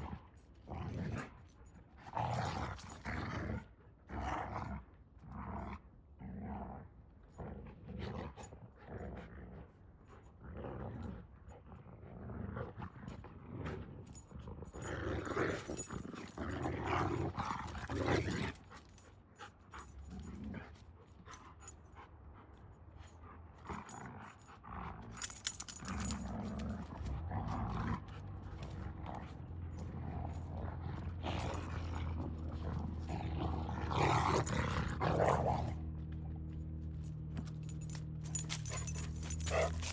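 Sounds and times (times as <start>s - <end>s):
dog growling: 2.0s - 4.6s, 11.9s - 18.8s, 23.6s - 36.5s, 37.4s - 39.9s.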